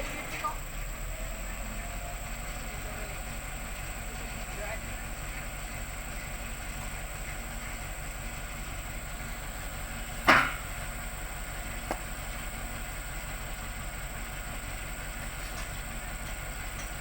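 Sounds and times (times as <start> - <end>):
heavy equipment engine idling: 0.0 - 17.0
sharp knock: 10.3 - 10.6.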